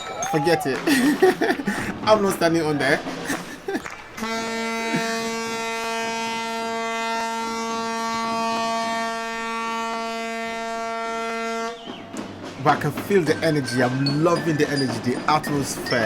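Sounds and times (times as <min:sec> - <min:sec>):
ship's horn blast: 0:04.2 - 0:11.9.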